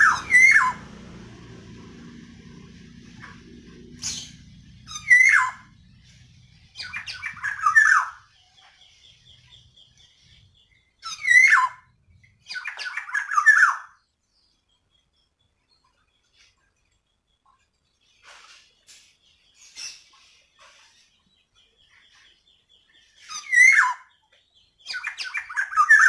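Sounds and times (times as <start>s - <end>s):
oriole calling: 0.0s - 8.2s.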